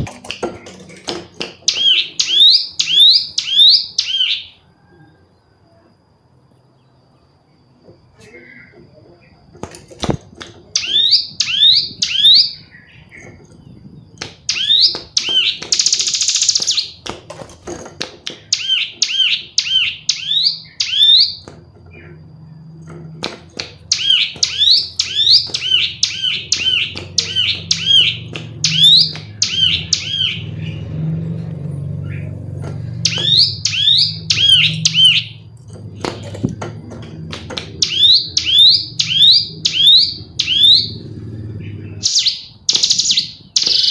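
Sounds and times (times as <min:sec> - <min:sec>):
bird falling chirps: 0:32.9 - 0:35.4.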